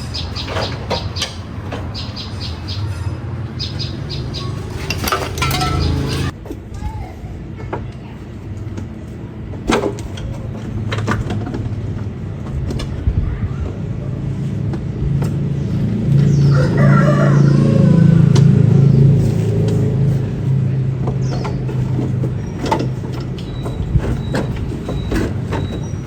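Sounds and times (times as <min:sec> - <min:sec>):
sharp metallic knocks: 0:00.0 - 0:06.3.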